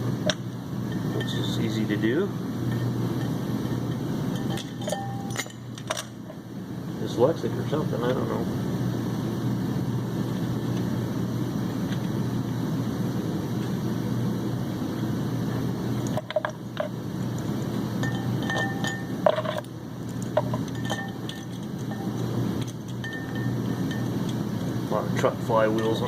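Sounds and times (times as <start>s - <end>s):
low shop hum: 0.0s - 26.0s
metal clinks and taps: 4.3s - 6.2s, 18.0s - 24.4s.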